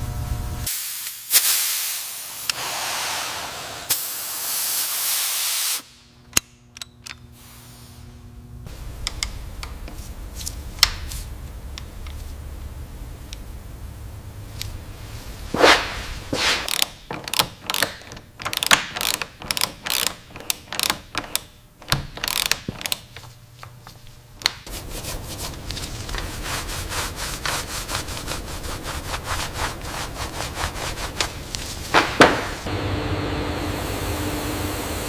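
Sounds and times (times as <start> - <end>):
hand rubbing strokes on surface: 15.0 - 16.7, 24.7 - 32.7.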